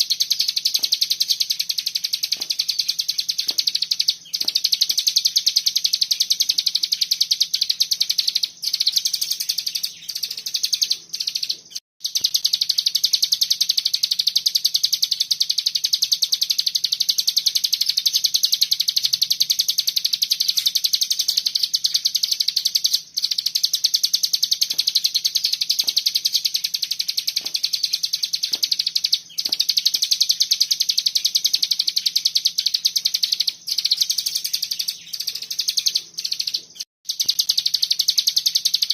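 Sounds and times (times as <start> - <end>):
songbird rattling trill: 0.0 - 38.9.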